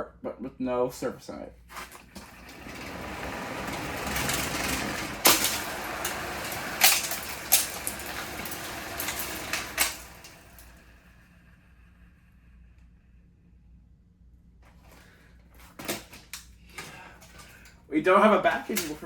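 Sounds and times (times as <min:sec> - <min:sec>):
broken fan running and rattling: 0:01.7 - 0:12.5, 0:14.7 - 0:19.0.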